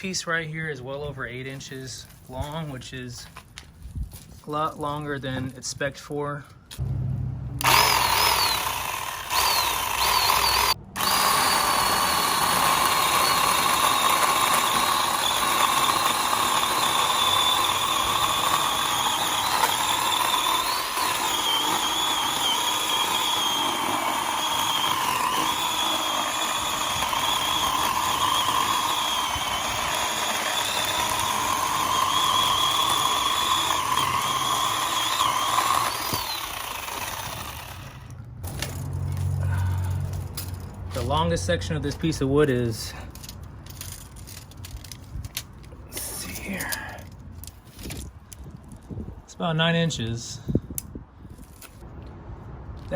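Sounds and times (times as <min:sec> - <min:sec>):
cordless chainsaw cutting wood: 0:07.6 - 0:38.2.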